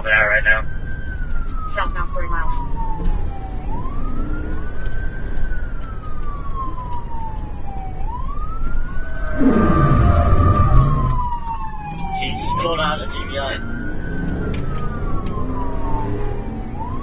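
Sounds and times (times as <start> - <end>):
engine and road noise: 0.0 - 17.0
police siren wailing: 0.0 - 17.0
deep rumble dropping in pitch: 8.7 - 11.4.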